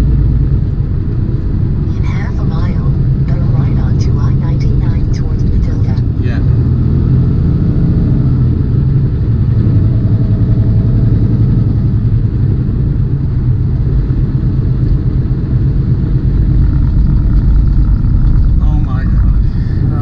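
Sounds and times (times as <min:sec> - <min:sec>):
truck diesel engine rumble: 0:00.0 - 0:20.0.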